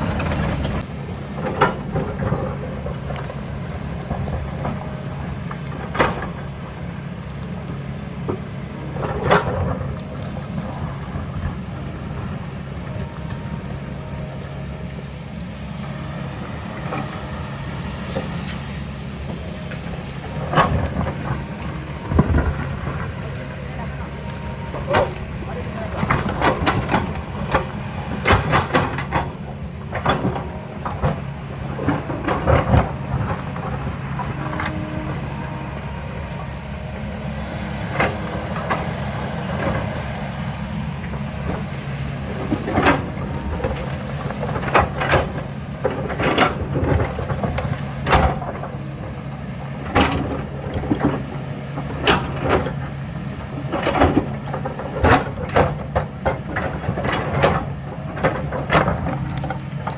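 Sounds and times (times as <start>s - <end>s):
diesel engine under load: 0.0s - 59.9s
metallic clanks and knocks: 24.7s - 35.1s, 42.4s - 49.2s, 53.6s - 59.9s.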